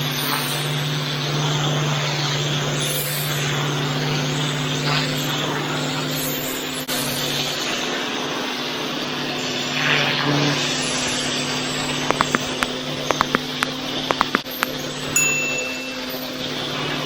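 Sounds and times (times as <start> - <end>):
pressure washer drone: 0.0 - 17.0
water jet hissing on paving: 0.0 - 17.0
sharp clicks: 12.0 - 14.8.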